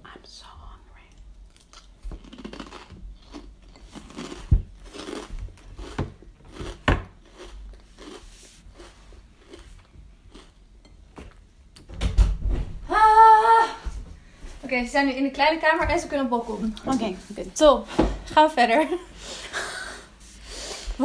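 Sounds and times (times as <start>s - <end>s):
crunchy chips chewing: 1.5s - 10.6s.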